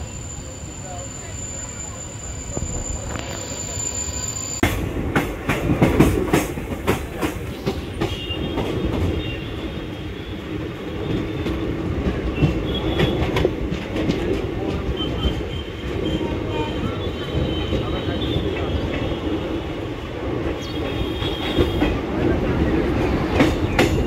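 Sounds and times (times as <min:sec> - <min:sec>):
faint high wheel squeals: 0:00.0 - 0:04.6
train wheels rumbling on rails: 0:00.0 - 0:24.0.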